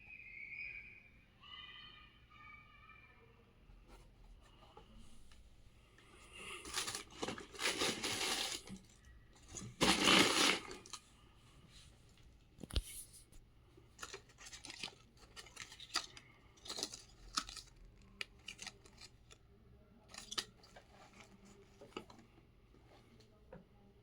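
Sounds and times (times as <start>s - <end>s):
packaging rustling: 6.3s - 11.0s, 14.0s - 19.4s, 20.1s - 22.3s.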